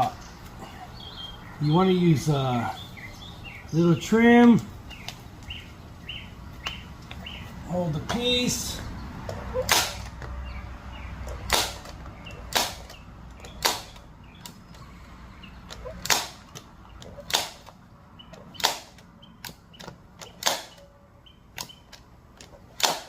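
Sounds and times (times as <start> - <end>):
staple gun firing: 9.7 - 10.2, 11.4 - 14.6, 16.0 - 16.6, 17.2 - 17.8, 18.5 - 20.8, 22.8 - 23.0.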